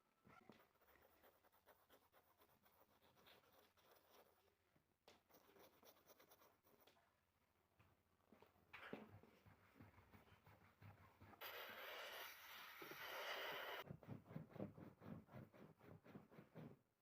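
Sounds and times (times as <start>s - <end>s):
faint rapid scratching and rubbing: 0.3s - 4.5s, 9.1s - 16.8s.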